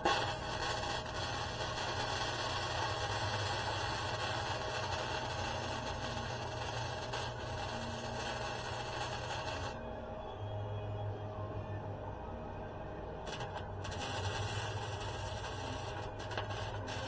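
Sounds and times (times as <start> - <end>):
arc welding hiss: 0.0 - 9.8, 13.3 - 17.0.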